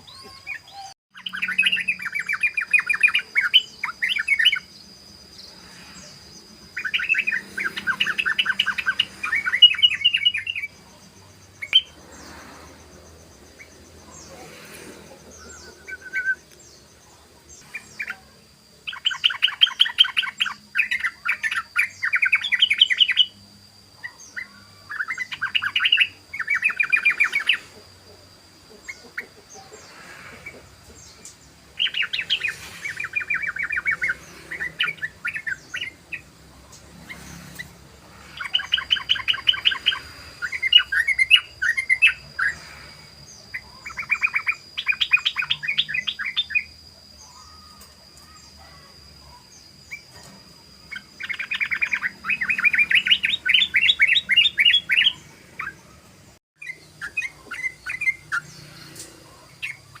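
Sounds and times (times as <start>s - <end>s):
bird chirping rapidly: 0.0s - 23.4s, 24.0s - 27.8s, 28.8s - 47.7s, 50.7s - 60.0s.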